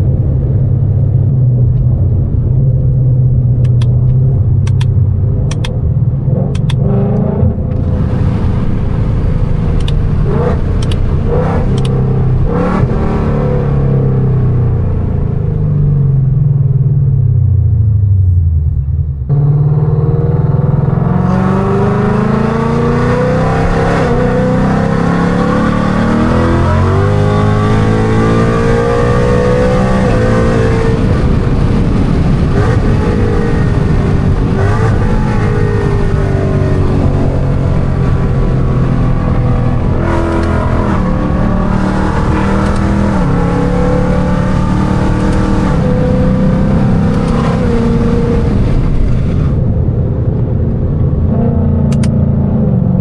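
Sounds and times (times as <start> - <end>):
car engine revving hard: 6.3 - 15.4, 19.3 - 49.8.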